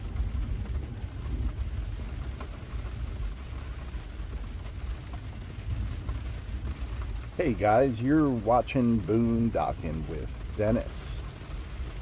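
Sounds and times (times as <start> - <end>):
distant thunder rumble: 0.0 - 4.6
steady rain: 0.0 - 12.0.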